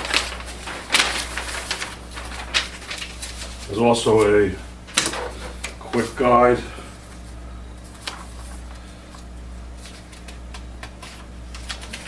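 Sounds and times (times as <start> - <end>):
booklet pages turning: 0.0 - 6.3, 7.0 - 12.0
paper rustling: 0.0 - 12.0
steady low hum: 0.0 - 12.0.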